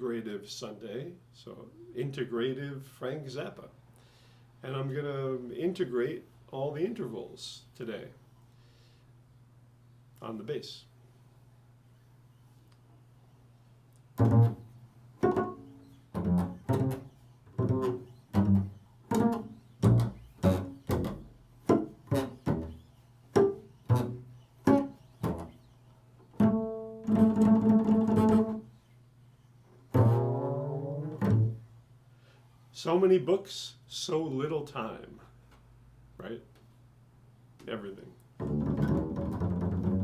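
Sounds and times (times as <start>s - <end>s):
bass plucked notes: 14.2s - 25.6s, 26.4s - 28.6s, 29.9s - 31.6s, 38.4s - 40.0s.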